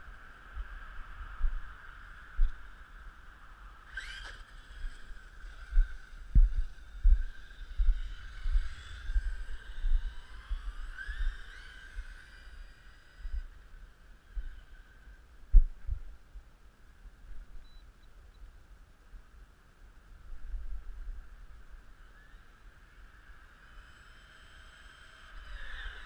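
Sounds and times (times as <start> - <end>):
electric motor whine: 3.7 - 15.6, 21.9 - 26.0
wind buffeting microphone: 3.9 - 13.6.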